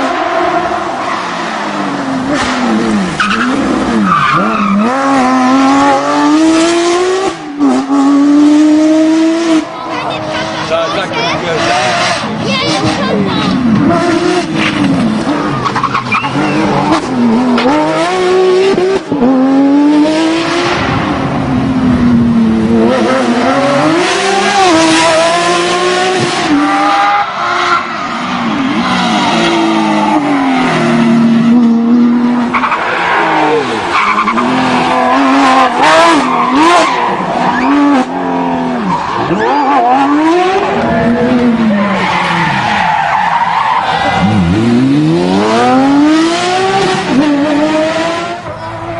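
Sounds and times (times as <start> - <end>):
rally car engine revving: 0.0 - 48.9.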